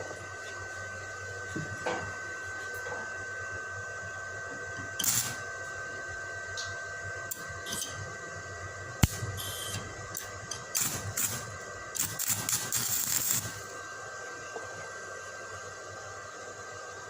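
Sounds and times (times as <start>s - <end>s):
steady high whine: 0.0s - 17.0s
welder click: 5.0s - 5.4s, 9.0s - 11.4s
arc welding crackling and spitting: 5.0s - 5.5s, 8.9s - 13.8s.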